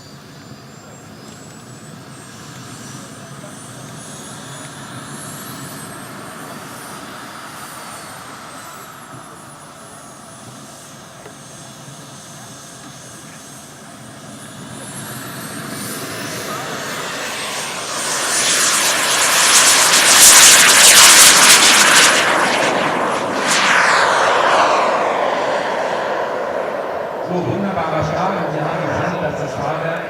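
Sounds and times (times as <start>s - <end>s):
model jet turbine whine: 0.0s - 30.0s
steady rushing noise: 18.3s - 30.0s.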